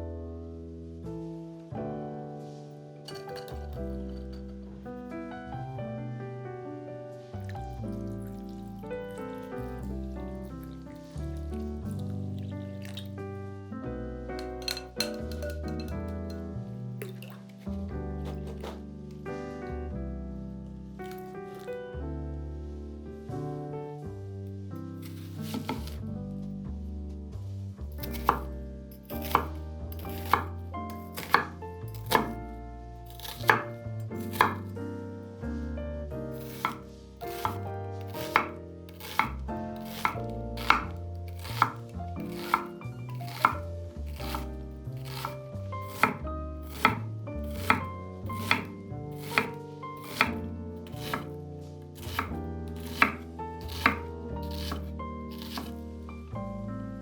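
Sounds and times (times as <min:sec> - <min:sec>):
knife chopping on cutting board: 0:18.2 - 0:18.9, 0:25.0 - 0:26.0, 0:28.0 - 0:28.5, 0:29.1 - 0:32.4, 0:33.1 - 0:34.7, 0:36.3 - 0:55.8.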